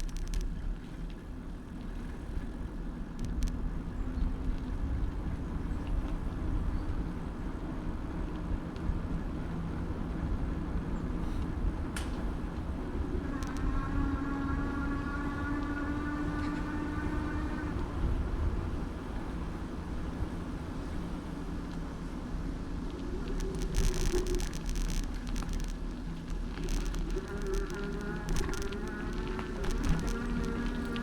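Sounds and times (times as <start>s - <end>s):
bicycle rattling: 0.0s - 31.0s
road and wind rumble: 0.0s - 31.0s
buzzing hum: 12.3s - 19.7s, 22.2s - 31.0s.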